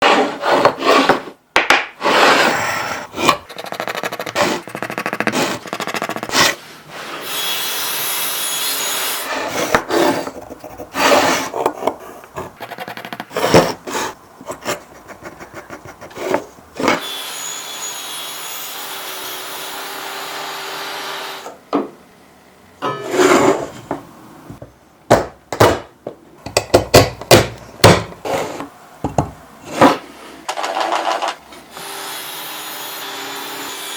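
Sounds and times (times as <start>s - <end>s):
wooden parts knocking and sliding: 23.5s - 31.4s.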